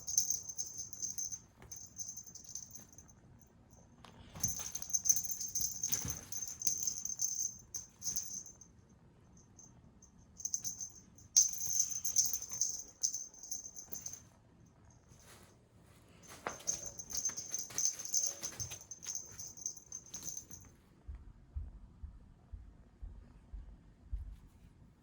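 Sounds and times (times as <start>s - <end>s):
cat toy rattling and jingling: 0.0s - 3.1s, 4.4s - 8.6s, 10.4s - 14.2s, 16.2s - 20.7s.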